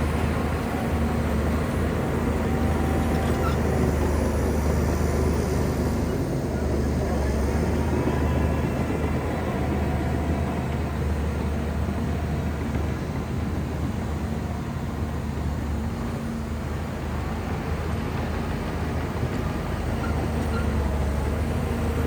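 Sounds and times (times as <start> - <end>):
bulldozer diesel engine drone: 0.0 - 22.0.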